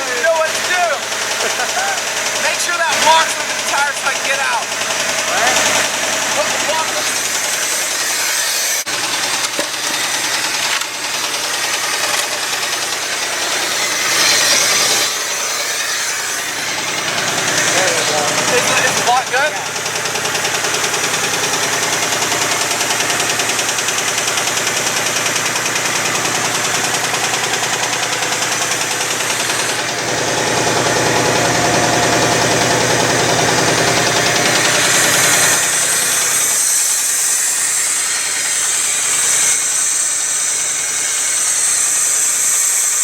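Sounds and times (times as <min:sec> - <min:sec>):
truck engine idling roughly: 0:00.0 - 0:43.0.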